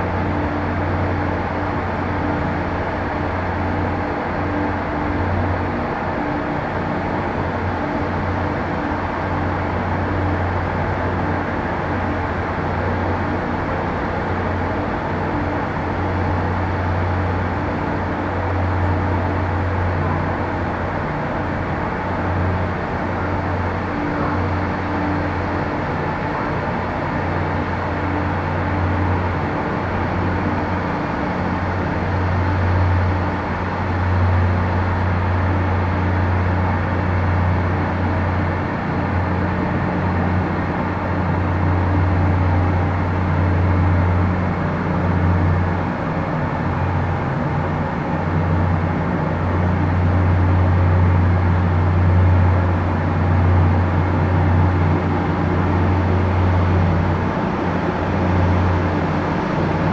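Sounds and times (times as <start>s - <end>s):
low engine drone: 0.0s - 59.9s.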